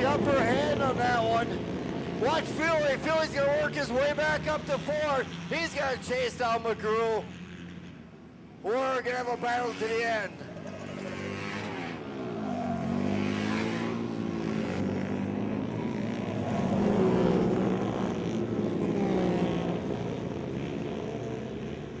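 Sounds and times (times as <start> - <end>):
racing motorcycles revving past: 9.3 - 22.0.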